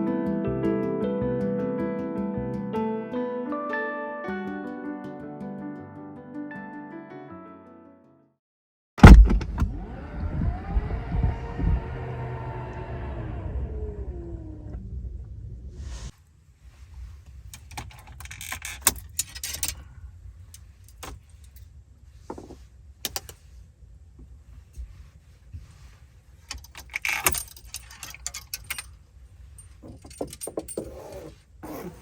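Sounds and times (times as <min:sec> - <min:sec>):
steady low rumble: 0:09.0 - 0:17.5.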